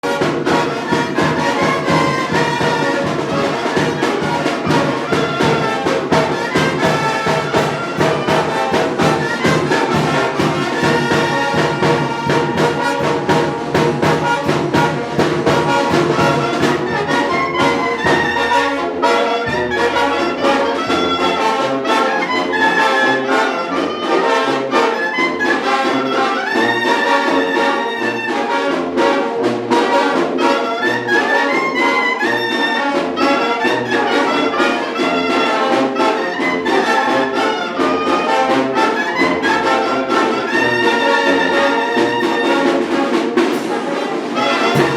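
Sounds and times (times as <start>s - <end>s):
drum beat: 0.0s - 22.1s, 39.4s - 44.9s
brass band playing: 0.0s - 44.9s.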